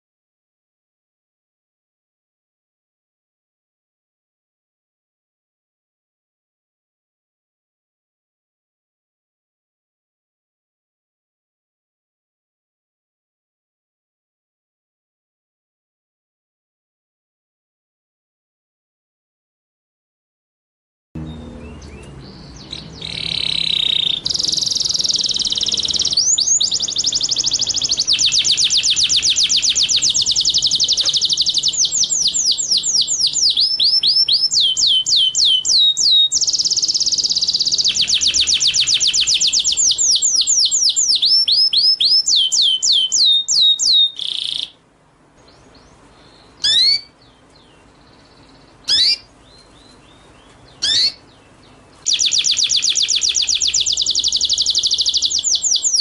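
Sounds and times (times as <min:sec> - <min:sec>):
bird buzzy trills: 0:21.2 - 0:44.8, 0:45.5 - 0:56.0
songbird singing rapid chirps: 0:21.2 - 0:56.0
single rising bird chirps: 0:21.6 - 0:44.8, 0:46.4 - 0:47.1, 0:48.8 - 0:49.3, 0:50.8 - 0:51.2, 0:52.0 - 0:56.0.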